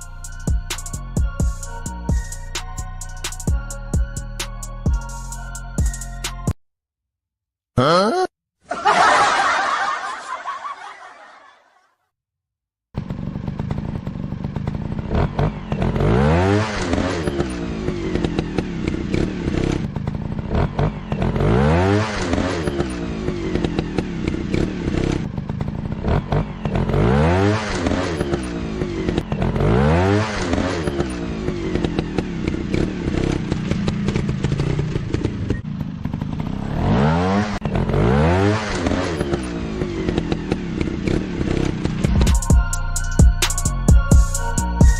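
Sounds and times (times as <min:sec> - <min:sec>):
dirt bike engine revving: 0:13.0 - 0:42.4.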